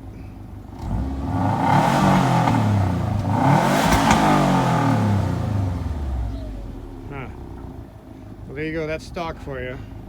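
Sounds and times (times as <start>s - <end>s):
car engine accelerating hard: 0.6s - 8.0s.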